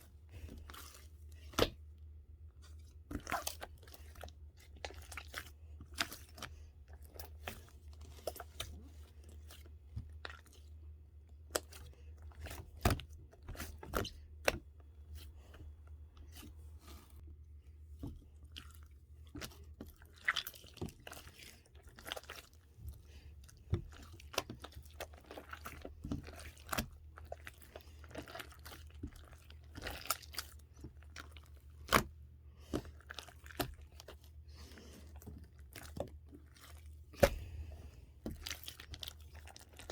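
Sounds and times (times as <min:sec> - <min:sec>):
chewing crunchy food: 0:03.2 - 0:10.8, 0:18.4 - 0:39.9.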